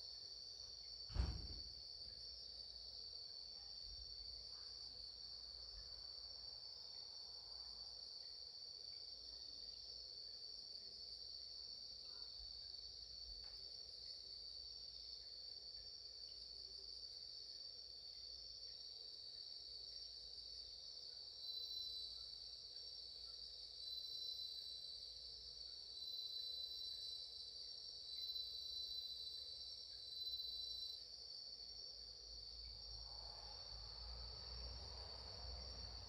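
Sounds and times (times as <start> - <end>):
loud insect trills: 14.0 - 36.0.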